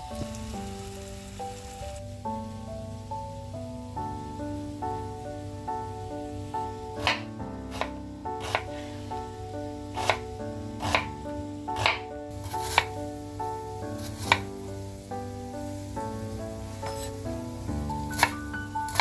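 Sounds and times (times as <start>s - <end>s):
soft background music: 0.0s - 19.0s
knife chopping on cutting board: 7.0s - 8.8s, 10.0s - 11.2s, 11.8s - 13.0s, 14.0s - 14.5s, 18.1s - 19.0s.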